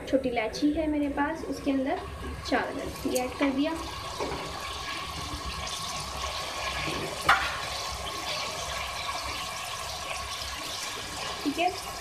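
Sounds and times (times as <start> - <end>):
food sizzling in hot oil: 1.2 - 12.0.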